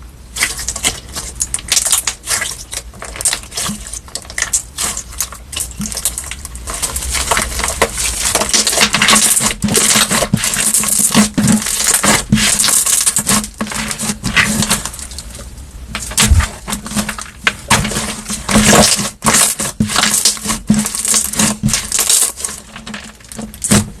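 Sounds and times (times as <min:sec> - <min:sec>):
slime squished by hand: 0:16.0 - 0:24.0.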